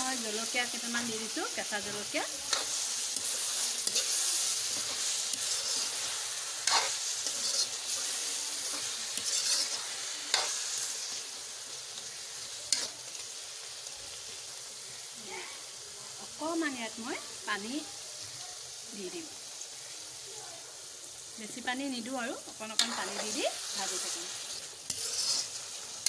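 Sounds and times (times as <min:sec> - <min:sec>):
food sizzling in hot oil: 0:00.0 - 0:26.0
metal spoon scraping pan: 0:01.1 - 0:11.2, 0:12.7 - 0:13.0, 0:22.7 - 0:26.0.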